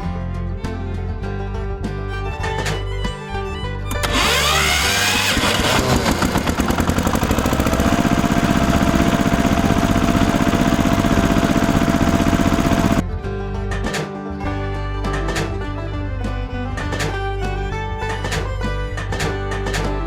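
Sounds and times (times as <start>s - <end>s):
small engine running: 3.9s - 13.0s.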